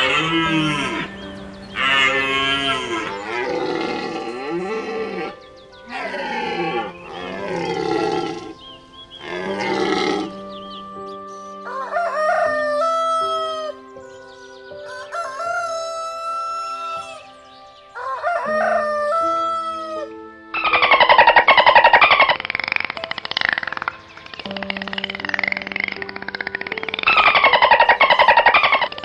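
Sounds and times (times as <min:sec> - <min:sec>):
loud raspy sound: 0:00.0 - 0:10.6
soft background music: 0:00.0 - 0:29.0.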